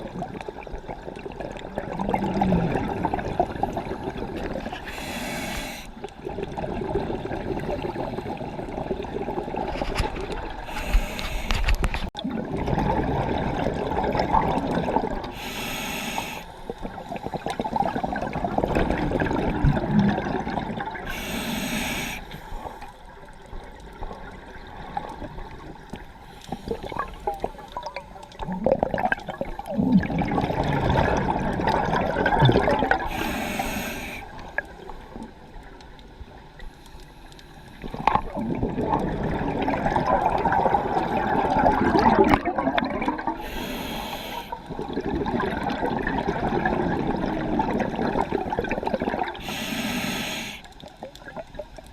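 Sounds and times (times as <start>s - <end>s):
exhaled bubbles: 0.0s - 35.3s, 37.7s - 51.9s
regulator hissing inhalations: 4.8s - 6.0s, 10.7s - 11.8s, 15.3s - 16.7s, 21.1s - 23.0s, 33.1s - 34.4s, 43.4s - 44.7s, 49.4s - 50.7s.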